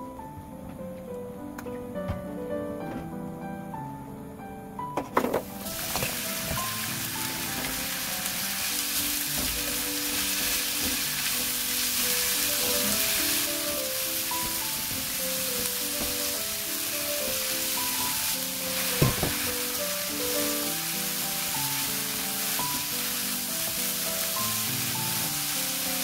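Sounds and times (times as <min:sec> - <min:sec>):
background music: 0:00.0 - 0:26.0
vegetables sizzling in oil: 0:05.4 - 0:26.0
spatula scraping wok: 0:05.6 - 0:26.0
meat thumping into pan: 0:18.8 - 0:19.6.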